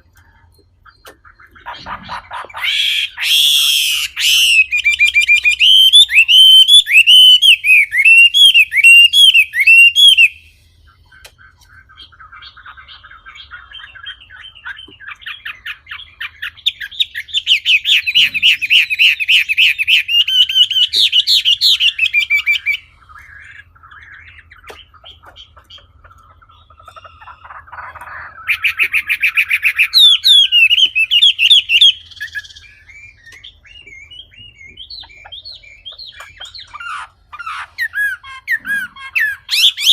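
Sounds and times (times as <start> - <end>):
bird chattering notes: 0.0 - 39.9
songbird whistled phrases: 2.6 - 10.4, 28.5 - 39.9.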